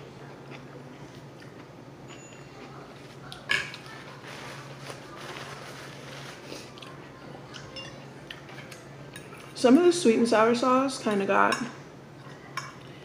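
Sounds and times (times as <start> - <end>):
person chewing food: 0.4 - 1.8.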